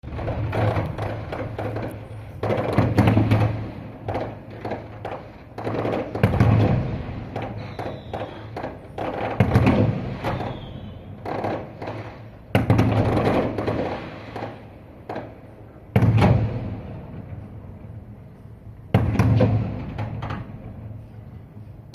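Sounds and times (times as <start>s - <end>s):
fireworks booming: 0.0s - 21.9s
fireworks crackling: 0.0s - 21.9s
faint high whistles: 7.6s - 8.5s, 10.2s - 11.1s.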